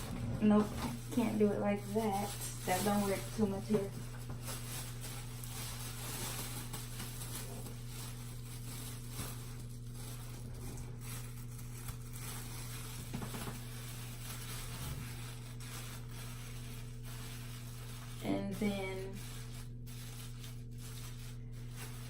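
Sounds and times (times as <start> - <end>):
low electrical hum: 0.0 - 22.0
rustling and handling noise: 0.0 - 22.0.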